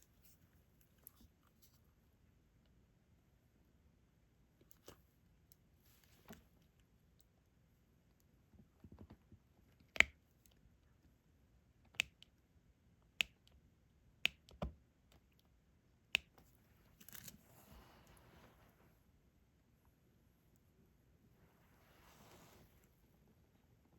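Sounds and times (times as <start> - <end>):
soft rustle: 16.5 - 19.1, 21.3 - 23.3.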